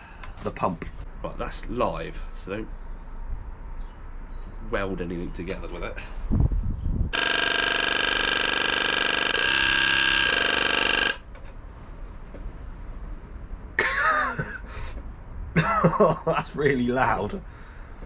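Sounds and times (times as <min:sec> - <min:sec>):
electric fuel pump buzzing: 0:07.1 - 0:11.5.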